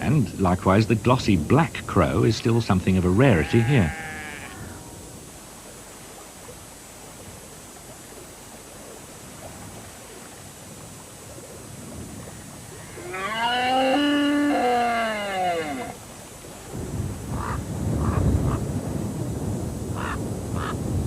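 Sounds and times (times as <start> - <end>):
faint background noise: 0.0 - 21.0
animal bellowing call: 3.3 - 4.9, 12.8 - 16.0.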